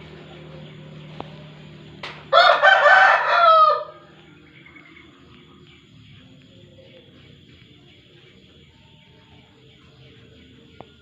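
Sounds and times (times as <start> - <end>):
rooster crowing: 2.3 - 4.4.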